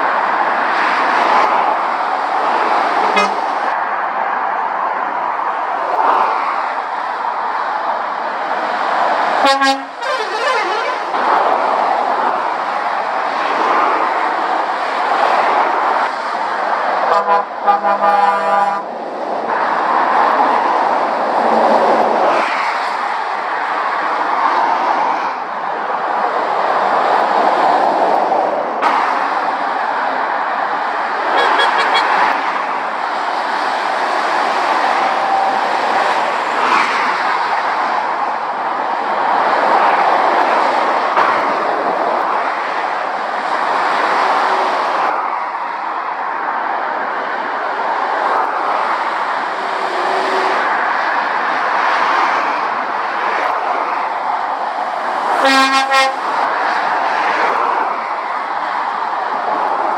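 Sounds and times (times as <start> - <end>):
traffic passing at speed: 0.0 - 59.9
vehicle horn blast: 3.1 - 3.5, 9.4 - 11.0, 17.1 - 18.9, 31.4 - 32.1, 55.4 - 56.3.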